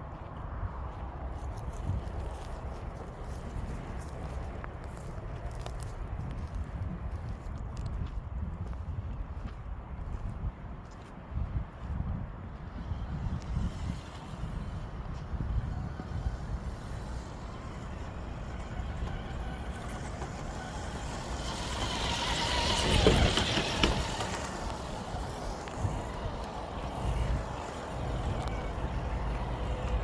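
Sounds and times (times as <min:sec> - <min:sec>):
low wind rumble on microphone: 0:00.0 - 0:30.0
vehicle passing on highway: 0:11.5 - 0:30.0.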